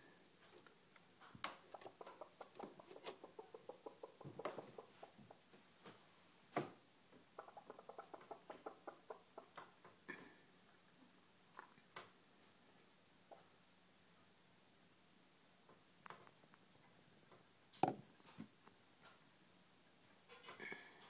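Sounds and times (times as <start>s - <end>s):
chicken making soft ticks: 7.4s - 9.7s.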